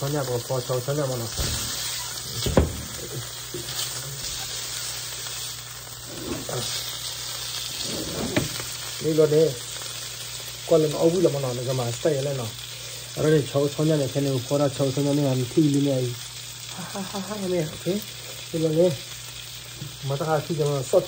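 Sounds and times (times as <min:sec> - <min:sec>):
meat sizzling in a pan: 0:00.0 - 0:21.0.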